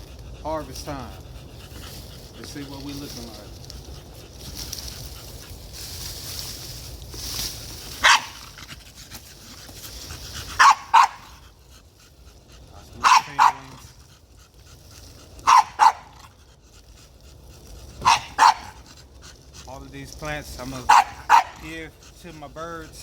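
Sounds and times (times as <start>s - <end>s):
dog barking: 8.0s - 8.4s, 10.6s - 11.4s, 13.0s - 13.9s, 15.4s - 16.3s, 18.0s - 18.8s, 20.8s - 21.7s.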